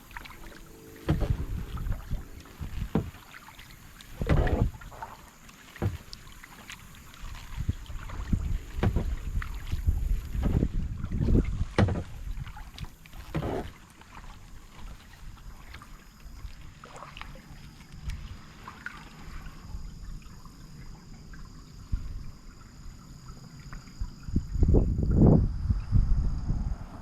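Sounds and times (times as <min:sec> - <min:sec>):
wind buffeting microphone: 0:00.0 - 0:03.2, 0:03.8 - 0:05.0, 0:07.4 - 0:12.8, 0:24.0 - 0:27.0
paddle splashing in water: 0:00.0 - 0:22.6.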